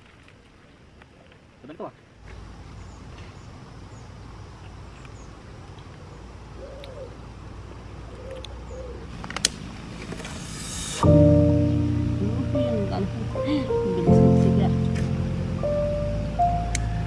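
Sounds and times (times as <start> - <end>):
bird hooting calls: 6.0 - 7.2, 8.1 - 9.1
steady low rumble: 9.1 - 17.0.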